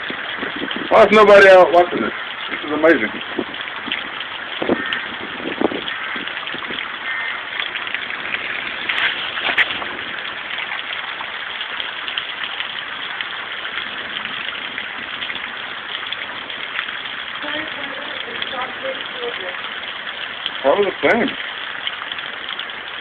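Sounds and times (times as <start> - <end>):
rain falling: 0.0 - 23.0
hailstones striking: 6.8 - 10.8.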